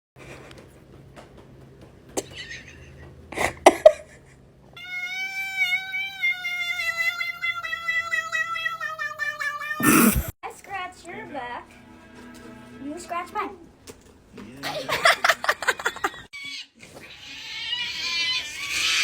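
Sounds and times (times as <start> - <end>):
cat meowing long: 4.8 - 10.3.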